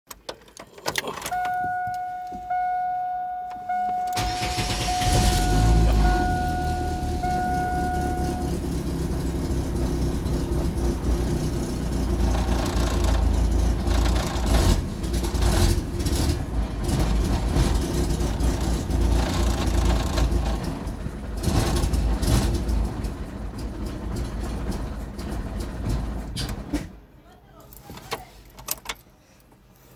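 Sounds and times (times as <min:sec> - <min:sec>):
engine cranking by starter: 0:03.6 - 0:27.0.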